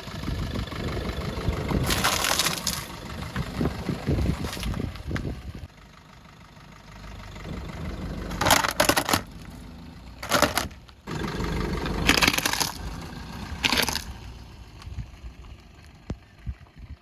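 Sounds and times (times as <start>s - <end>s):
low engine rumble: 0.0s - 17.0s
clay pots crunching under tyres: 0.9s - 5.6s, 7.5s - 16.3s.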